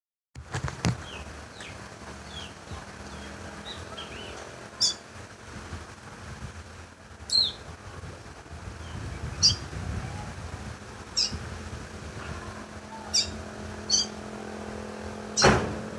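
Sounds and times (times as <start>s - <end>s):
songbird whistling: 3.1s - 5.0s, 7.3s - 7.6s, 9.4s - 9.6s, 11.2s - 11.4s, 13.1s - 14.2s.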